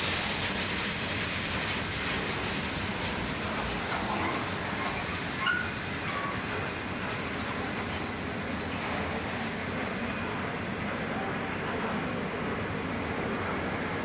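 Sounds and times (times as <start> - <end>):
train wheels rumbling: 0.0 - 14.0
high wheel squeal: 4.8 - 6.5, 7.7 - 8.0.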